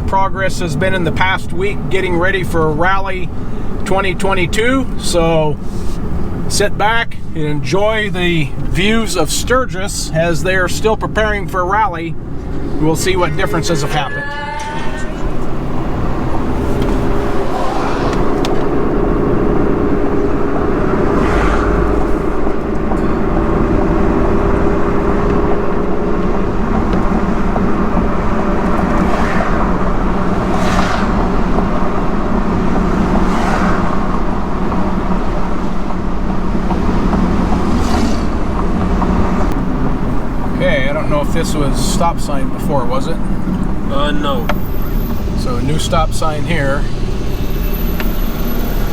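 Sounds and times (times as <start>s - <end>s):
car engine hum: 0.0s - 48.9s
road rumble: 0.0s - 48.9s
brief whooshes: 12.7s - 18.8s, 30.3s - 31.4s.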